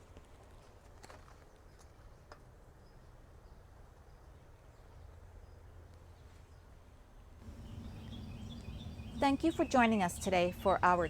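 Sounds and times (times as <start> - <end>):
low background rumble: 7.4 - 11.0.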